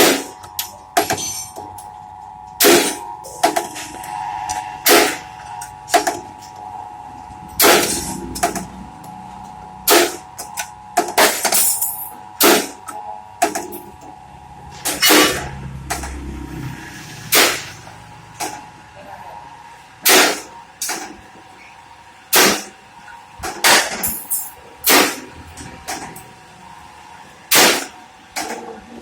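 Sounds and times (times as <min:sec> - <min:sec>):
steady tone: 0:00.6 - 0:20.8
sharp metal clanks: 0:07.6 - 0:08.7, 0:14.7 - 0:16.2, 0:23.6 - 0:25.3, 0:27.5 - 0:27.9.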